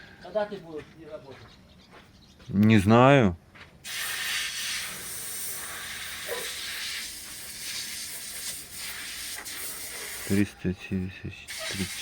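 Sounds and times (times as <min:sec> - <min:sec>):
steady hiss: 0:03.8 - 0:10.5, 0:11.5 - 0:12.0.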